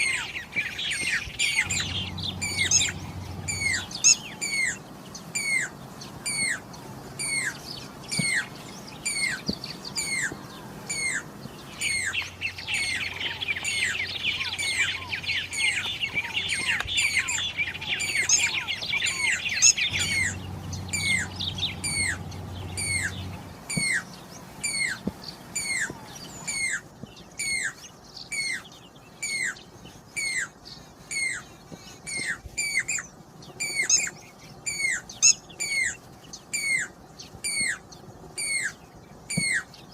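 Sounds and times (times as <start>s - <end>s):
birds twittering: 0.0s - 39.9s
cuckoo whistled calls: 7.2s - 28.6s, 38.4s - 39.7s.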